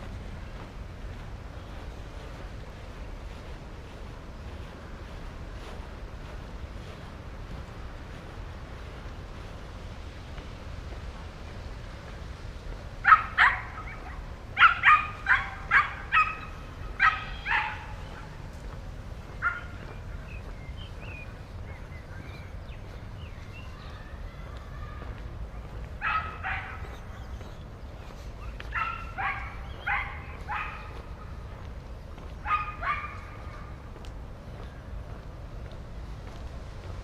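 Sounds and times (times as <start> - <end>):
low city hum: 0.0 - 37.0
small dog barking: 13.0 - 18.4, 19.3 - 20.0, 26.0 - 27.3, 28.4 - 31.4, 32.4 - 33.8.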